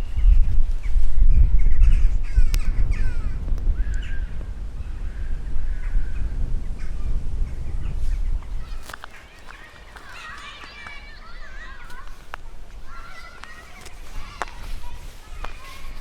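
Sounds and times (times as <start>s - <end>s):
crows cawing: 8.0s - 16.0s.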